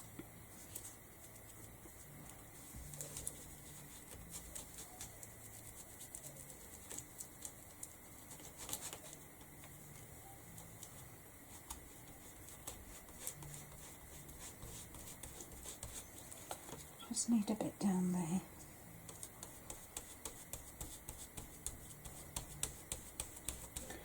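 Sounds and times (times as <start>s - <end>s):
foam pad tapping on canvas: 19.4s - 23.9s.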